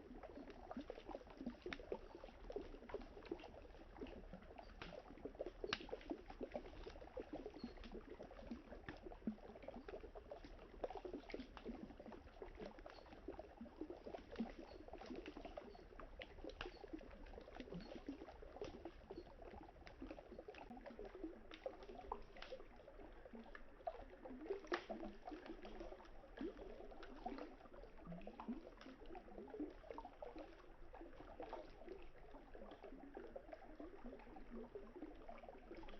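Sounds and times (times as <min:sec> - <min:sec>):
campfire crackling and popping: 0:05.7 - 0:06.1, 0:24.6 - 0:25.2.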